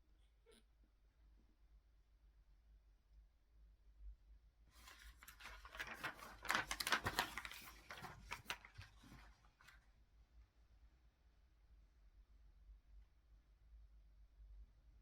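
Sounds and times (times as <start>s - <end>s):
rustling and crinkling handling noise: 4.8s - 9.8s.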